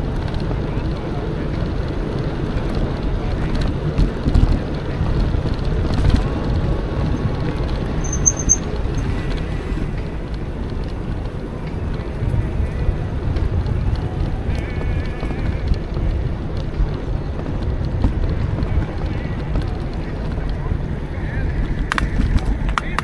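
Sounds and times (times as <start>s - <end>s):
wind and tyre rumble: 0.0s - 23.0s
bike bumps: 4.0s - 11.4s, 21.9s - 23.0s
high chirps: 8.0s - 9.1s.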